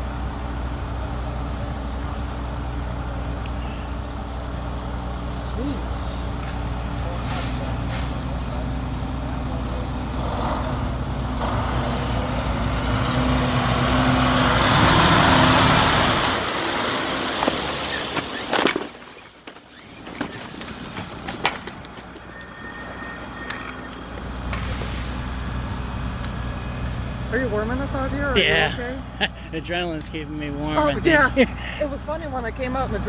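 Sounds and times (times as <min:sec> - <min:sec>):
truck engine running: 0:00.0 - 0:33.0
broad rushing hiss: 0:24.6 - 0:25.3.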